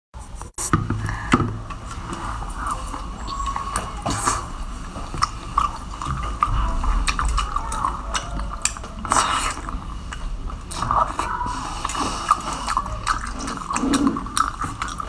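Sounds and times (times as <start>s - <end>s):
wet chewing and smacking: 1.0s - 15.0s.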